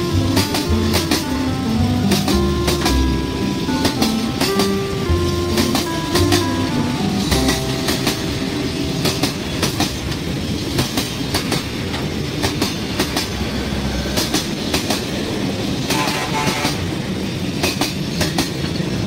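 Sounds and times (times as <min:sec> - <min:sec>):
clickety-clack over rail joints: 0:00.0 - 0:05.0, 0:09.0 - 0:19.0
freight train wheels rumbling: 0:00.0 - 0:19.0.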